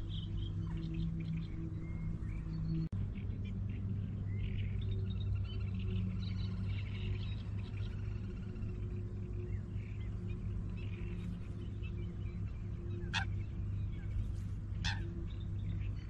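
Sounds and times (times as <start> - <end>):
birds singing and chirping: 0.0 - 16.0
steady low drone: 0.0 - 16.0
short sharp bird calls: 14.8 - 15.1.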